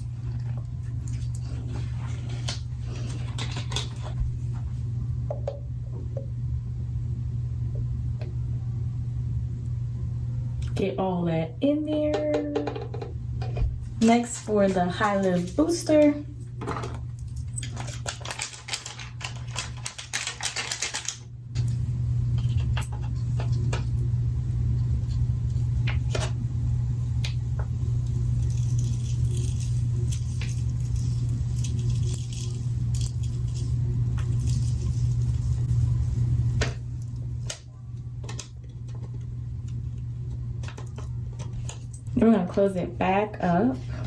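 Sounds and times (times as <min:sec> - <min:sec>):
low steady hum: 0:00.0 - 0:44.0
foil packet crinkling: 0:17.1 - 0:21.8, 0:27.9 - 0:37.6.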